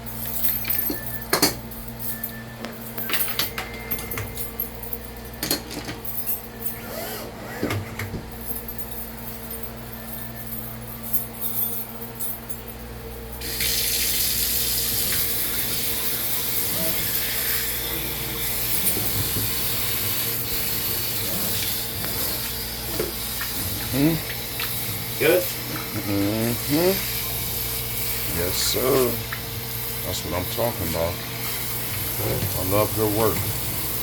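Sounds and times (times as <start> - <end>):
water running into sink: 13.4 - 17.8.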